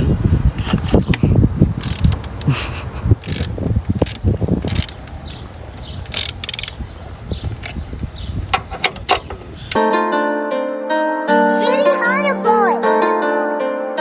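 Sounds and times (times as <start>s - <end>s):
socket ratchet clicking: 1.8s - 2.5s, 3.2s - 6.8s.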